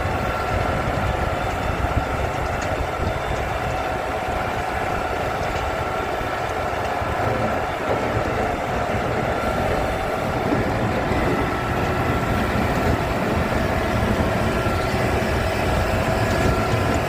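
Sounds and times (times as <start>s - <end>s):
feed mixer running: 0.0s - 17.0s.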